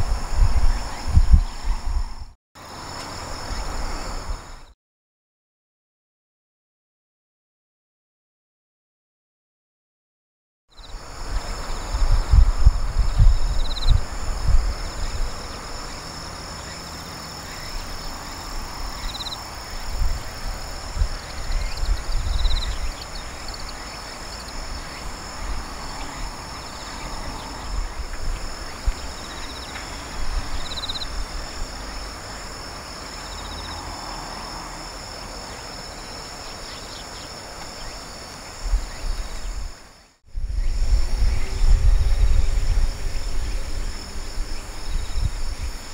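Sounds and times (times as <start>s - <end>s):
wind rumble on microphone: 0.0s - 2.4s, 3.2s - 4.7s, 10.8s - 35.4s, 38.5s - 45.9s
insects chirring: 0.0s - 4.8s, 10.7s - 45.9s.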